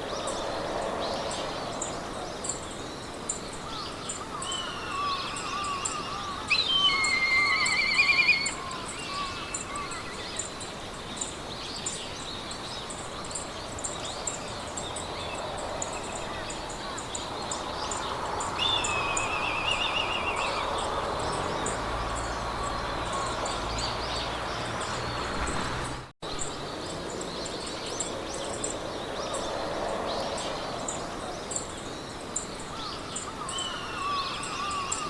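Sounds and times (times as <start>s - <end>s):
songbirds singing: 0.0s - 35.0s
wind in grass: 0.0s - 35.0s
high insect chirps: 1.8s - 10.8s.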